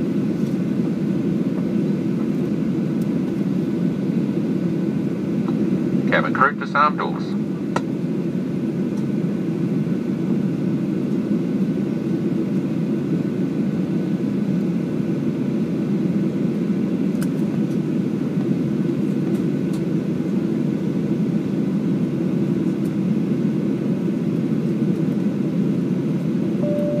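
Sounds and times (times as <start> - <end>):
airliner cabin rumble: 0.0 - 27.0
faint steady tone: 26.6 - 27.0.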